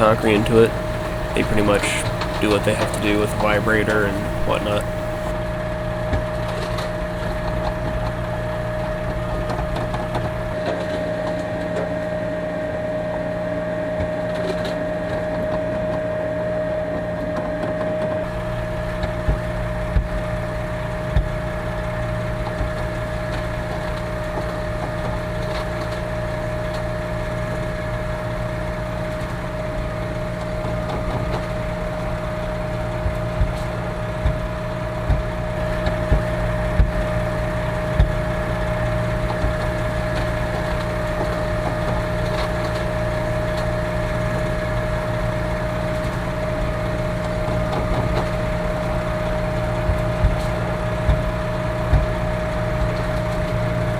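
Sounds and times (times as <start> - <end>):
diesel engine humming: 0.0 - 5.3.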